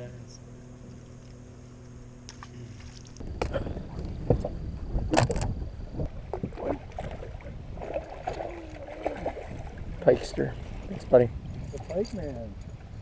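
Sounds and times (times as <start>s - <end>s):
microphone handling noise: 2.4s - 7.1s
wind rumble on microphone: 2.5s - 13.0s.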